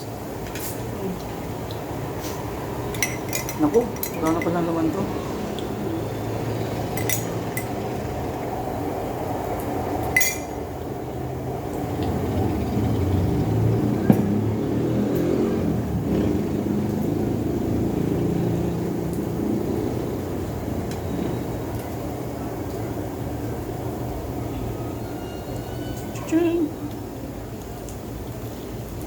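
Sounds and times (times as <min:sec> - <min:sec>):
tableware clinking: 0:02.9 - 0:04.8, 0:06.9 - 0:07.8, 0:10.1 - 0:10.6.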